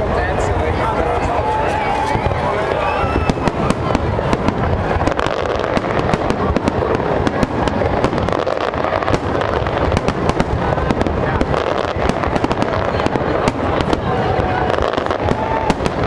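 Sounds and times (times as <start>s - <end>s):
fireworks bursting: 0.0s - 16.0s
sharp bangs and crackles: 0.0s - 16.0s.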